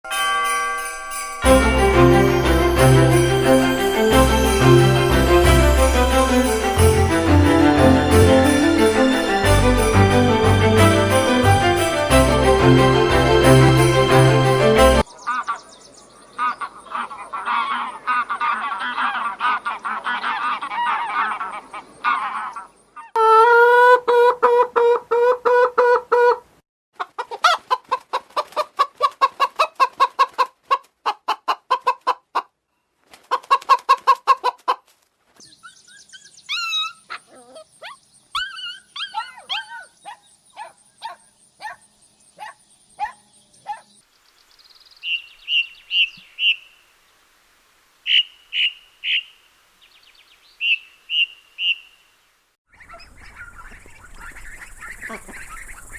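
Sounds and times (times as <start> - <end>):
birds chattering: 15.1 - 23.1, 48.1 - 51.9, 52.7 - 55.9
loud pitched bird calls: 44.6 - 46.9, 48.1 - 52.1, 52.7 - 55.9
sharp high bird calls: 44.9 - 46.9, 48.0 - 52.1, 52.7 - 55.9
rapid short bird calls: 48.1 - 49.5.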